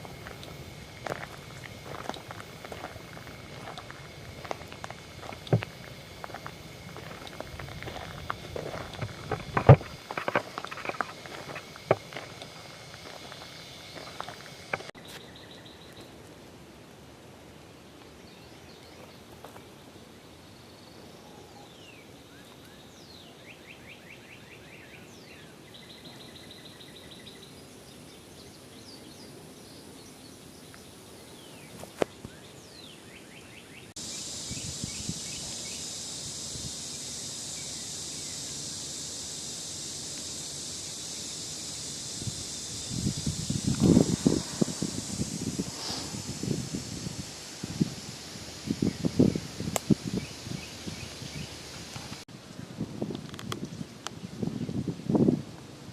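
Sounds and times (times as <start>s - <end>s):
birds singing trills and chirps: 0.0s - 16.2s, 17.8s - 39.1s, 48.5s - 52.2s
high-pitched hiss: 0.0s - 55.9s.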